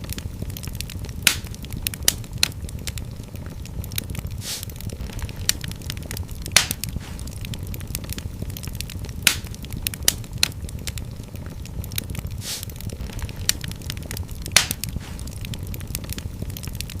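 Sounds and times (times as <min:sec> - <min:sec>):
sharp fire pops: 0:00.0 - 0:17.0
wood fire crackling: 0:00.0 - 0:17.0
hissing spurt: 0:04.4 - 0:05.1, 0:12.4 - 0:13.1.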